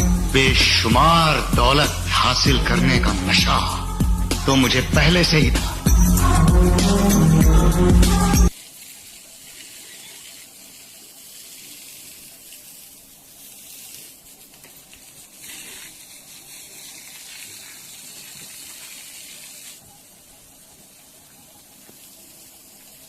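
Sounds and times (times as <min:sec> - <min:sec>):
running water hissing: 0:00.0 - 0:23.0.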